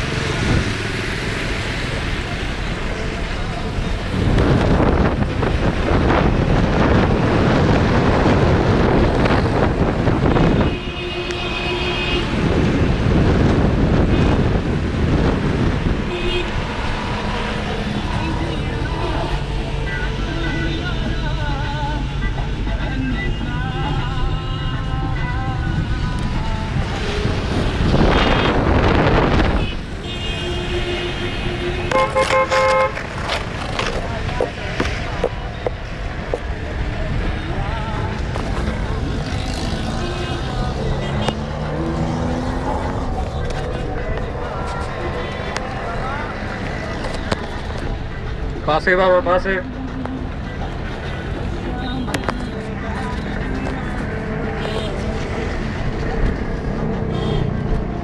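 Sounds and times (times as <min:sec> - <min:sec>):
vehicle rumbling on wet road: 0:00.0 - 0:10.6, 0:12.2 - 0:20.4, 0:24.8 - 0:30.0, 0:31.0 - 0:58.0
wind buffeting microphone: 0:04.0 - 0:10.9, 0:25.7 - 0:30.0
vehicle horn: 0:10.2 - 0:12.6, 0:16.0 - 0:16.6, 0:27.6 - 0:33.0, 0:39.6 - 0:42.5, 0:54.4 - 0:55.1, 0:57.1 - 0:57.6.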